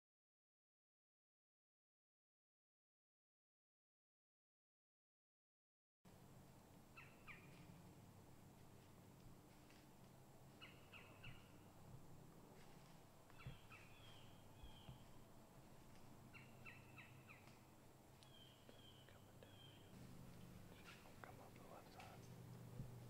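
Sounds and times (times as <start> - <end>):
low steady hum: 6.1 - 23.0
bird calls: 6.9 - 7.8, 10.5 - 11.7, 13.3 - 15.2, 16.3 - 20.0, 20.7 - 22.3.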